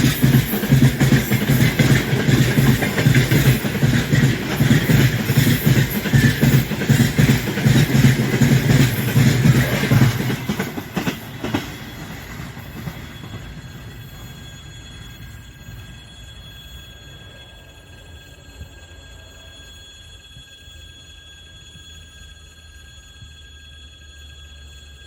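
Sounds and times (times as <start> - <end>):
train wheels clattering over rail joints: 0.0 - 14.3
faint train rumble: 0.0 - 25.0.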